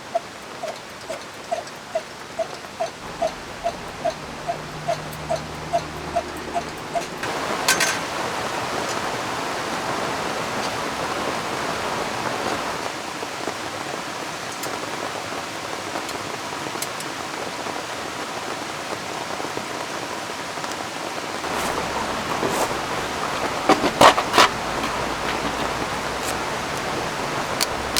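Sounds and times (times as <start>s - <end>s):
drops ticking: 0.0s - 8.0s, 21.4s - 27.9s
river flowing: 0.0s - 13.0s, 21.4s - 27.9s
rain falling: 0.0s - 27.9s.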